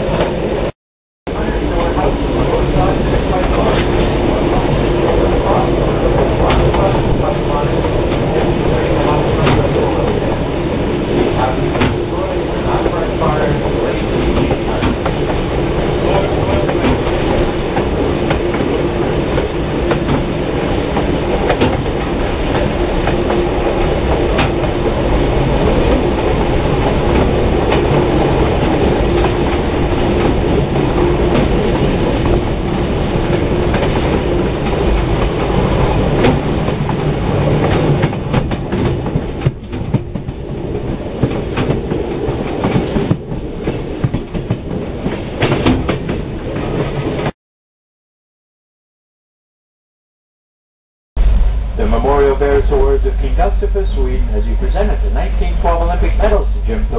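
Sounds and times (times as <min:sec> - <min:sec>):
train coach rumbling on track: 0:00.0 - 0:00.7, 0:01.3 - 0:47.3, 0:51.2 - 0:56.9
wheels clicking over rail joints: 0:03.3 - 0:47.3.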